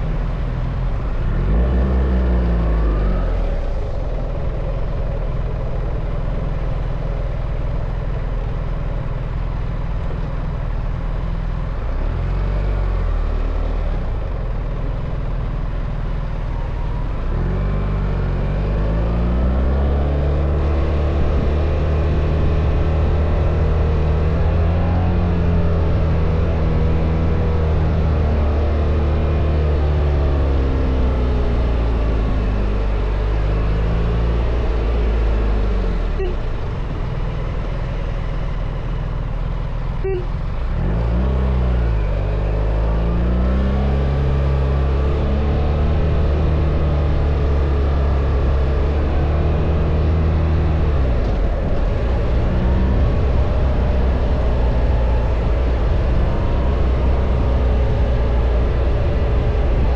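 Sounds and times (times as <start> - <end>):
motorcycle engine running: 1.9 - 12.0, 18.1 - 40.8.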